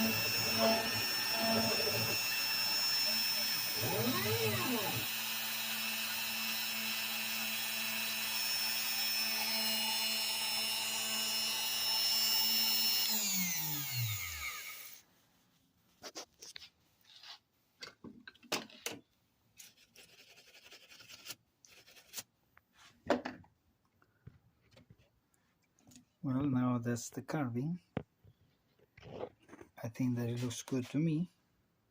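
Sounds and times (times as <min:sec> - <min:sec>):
router spindle whining: 0:00.0 - 0:15.0.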